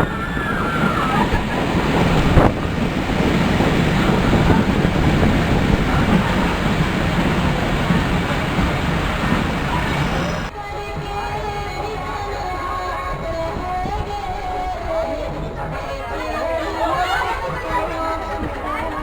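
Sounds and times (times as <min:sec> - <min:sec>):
train rumbling: 0:00.0 - 0:10.5
wind buffeting microphone: 0:00.0 - 0:19.0.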